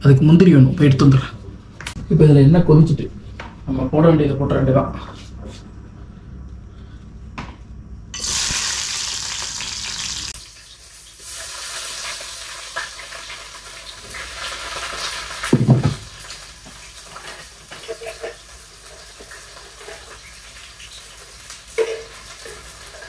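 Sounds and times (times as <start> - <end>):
onions sizzling in hot oil: 8.2 - 23.0.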